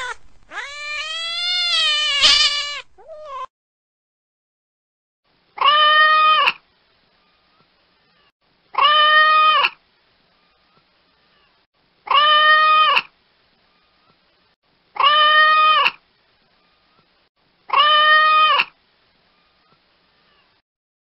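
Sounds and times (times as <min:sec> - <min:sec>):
cat meowing: 0:00.0 - 0:03.5.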